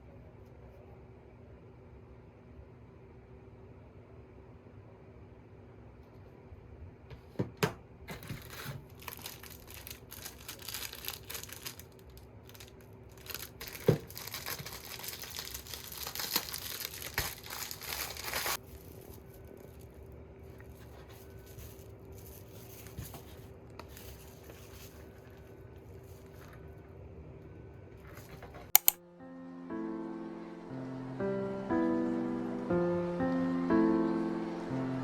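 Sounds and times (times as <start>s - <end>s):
faint steady hum: 0.0s - 35.0s
packaging crinkling and tearing: 8.1s - 20.0s.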